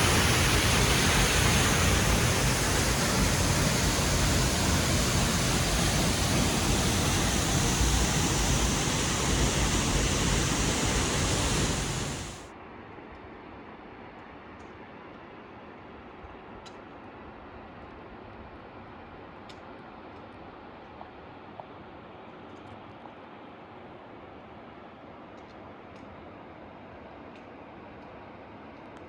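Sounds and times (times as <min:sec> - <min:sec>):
fast-flowing water rushing: 0:00.0 - 0:12.4.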